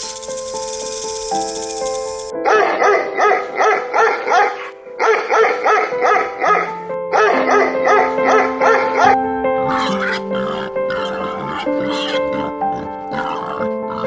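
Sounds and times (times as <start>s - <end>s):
background music with held notes: 0.0s - 14.0s
dog barking rapidly: 2.5s - 12.2s.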